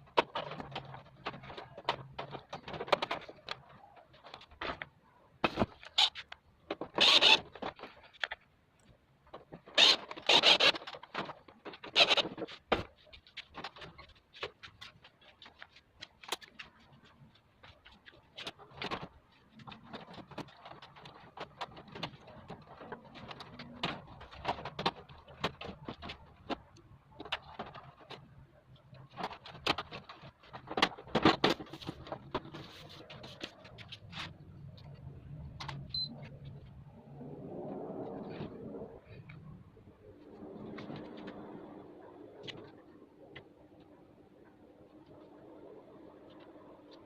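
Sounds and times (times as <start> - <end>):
scraping and knocking of parts: 0.0 - 36.8.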